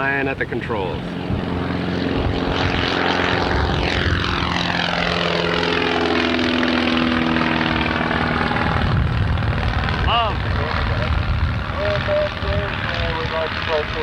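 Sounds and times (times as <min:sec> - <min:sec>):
propeller plane passing by: 0:00.0 - 0:14.0.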